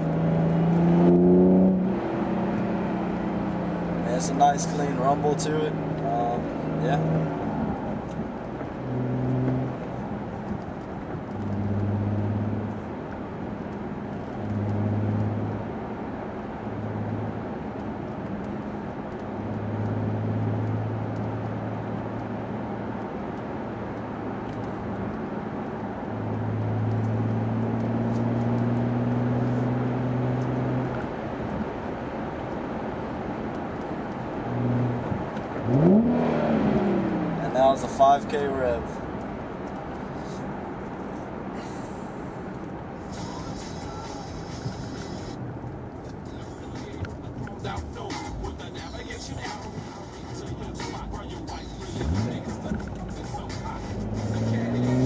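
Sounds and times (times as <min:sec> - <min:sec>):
engine revving: 0:00.0 - 0:10.4, 0:11.3 - 0:12.9, 0:14.0 - 0:15.7, 0:25.9 - 0:31.0, 0:34.4 - 0:39.0, 0:47.2 - 0:55.0
car engine rumble inside cabin: 0:00.0 - 0:55.0.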